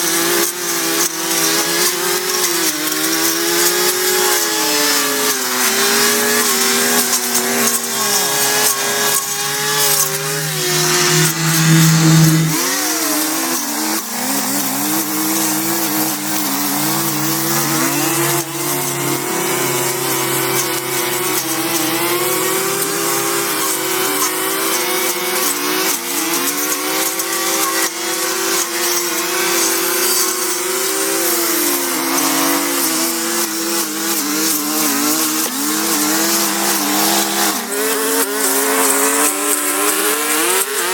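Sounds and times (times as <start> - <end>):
motor running: 3.6 - 12.7, 15.4 - 24.6.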